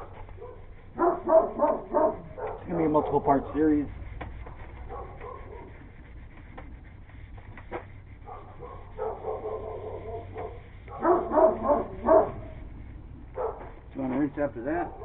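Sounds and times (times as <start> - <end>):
dog barking: 0.4 - 3.7, 4.9 - 5.8, 8.2 - 12.6, 13.4 - 13.7, 14.8 - 15.0.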